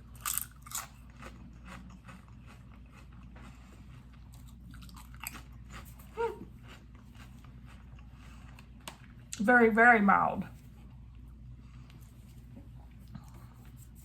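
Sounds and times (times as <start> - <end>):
person chewing crunchy food: 0.0 - 9.2.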